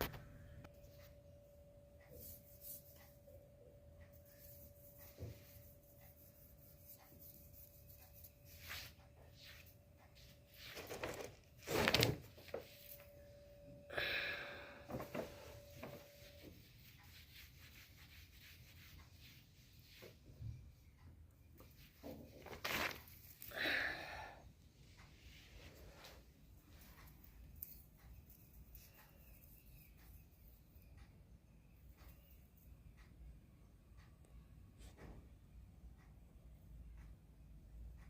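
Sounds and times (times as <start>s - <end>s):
faint steady hum: 0.0s - 38.0s
paper bag rustling: 10.5s - 13.0s, 14.9s - 16.0s, 22.3s - 23.4s.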